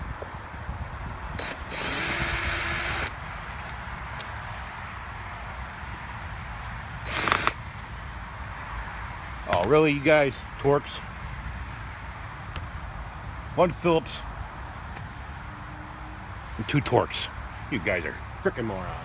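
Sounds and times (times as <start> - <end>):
cordless drill whining: 0.1 - 3.3, 7.0 - 7.6.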